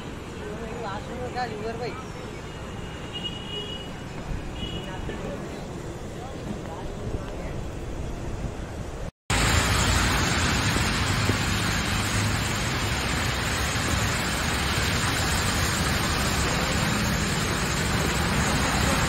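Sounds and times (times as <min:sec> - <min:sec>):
heavy rain on a road: 0:09.3 - 0:19.0
vehicles swishing through water: 0:09.3 - 0:19.0.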